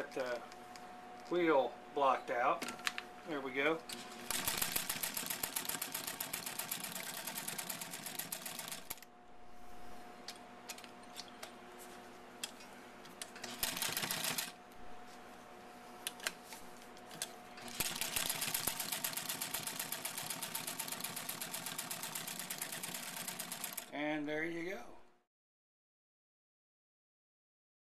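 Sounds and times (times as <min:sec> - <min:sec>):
sewing machine stitching: 0:03.9 - 0:09.0, 0:13.4 - 0:14.6, 0:17.1 - 0:23.9
sewing machine clicks: 0:04.3 - 0:09.0, 0:13.4 - 0:14.5, 0:17.1 - 0:23.9.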